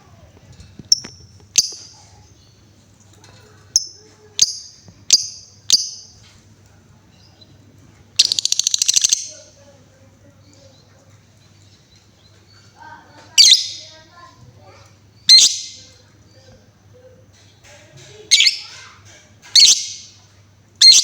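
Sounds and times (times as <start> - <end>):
lovebird chattering trill: 3.8 - 6.2, 8.2 - 9.5, 13.4 - 14.0, 15.2 - 16.0, 18.3 - 18.9, 19.6 - 20.2, 20.8 - 21.0
lovebird chirps: 8.2 - 9.4, 13.4 - 13.9, 15.2 - 15.9, 18.3 - 18.7, 19.6 - 20.2, 20.8 - 21.0.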